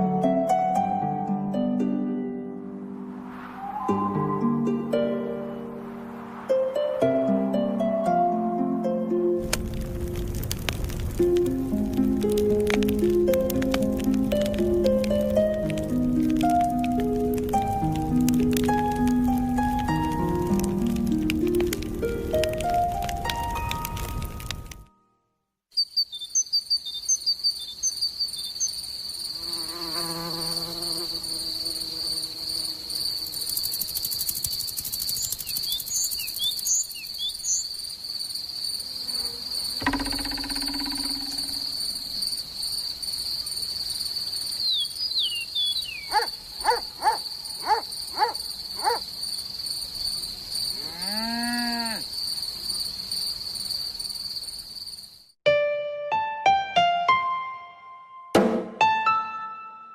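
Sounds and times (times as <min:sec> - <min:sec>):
bird chirps: 0:25.7 - 0:28.8, 0:35.1 - 0:37.7, 0:44.6 - 0:49.0
cartoon insect calls: 0:25.8 - 0:37.9, 0:38.7 - 0:42.4, 0:44.5 - 0:49.1
high insect trill: 0:25.8 - 0:55.4.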